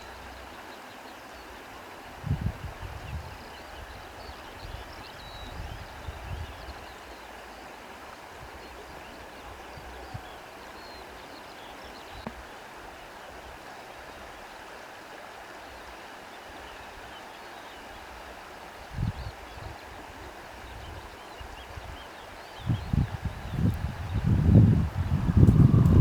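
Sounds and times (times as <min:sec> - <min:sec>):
reeds rustling: 0:24.6 - 0:26.0.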